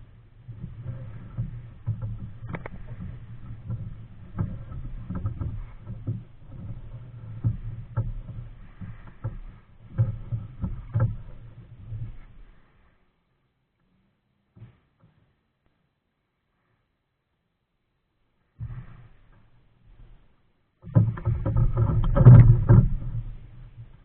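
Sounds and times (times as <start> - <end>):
paddle knocking against hull: 0.0 - 12.6, 20.8 - 24.0
low rumble of water: 0.0 - 12.7, 18.6 - 24.0
kayak paddle strokes: 0.0 - 13.3, 18.4 - 24.0.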